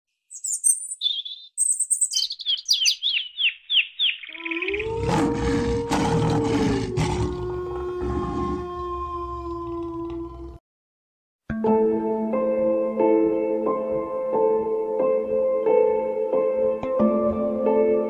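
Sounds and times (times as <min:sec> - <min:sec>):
bird chirping: 0:00.1 - 0:05.1.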